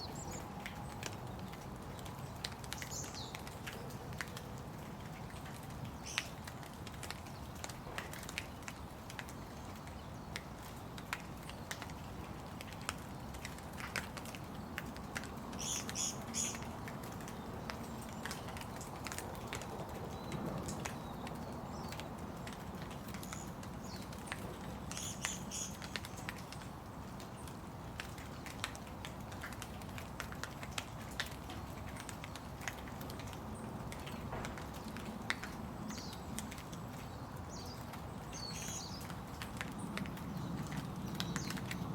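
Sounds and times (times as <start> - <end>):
rain pattering: 0.0 - 41.9.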